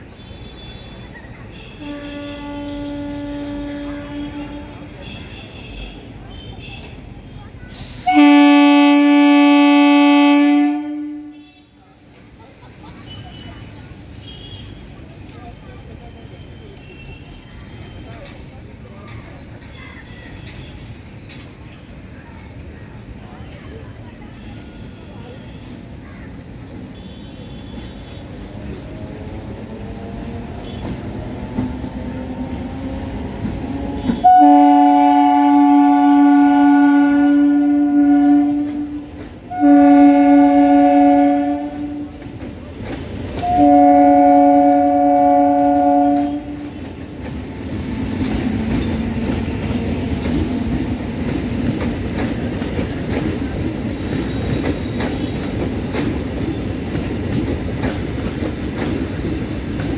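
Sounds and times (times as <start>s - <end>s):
train rumbling past: 0.0s - 59.9s
train horn blasts: 1.6s - 6.7s, 8.0s - 11.8s, 33.8s - 42.3s, 43.4s - 46.8s
wheels clicking over rail joints: 17.8s - 26.7s, 41.7s - 43.6s, 46.1s - 59.9s.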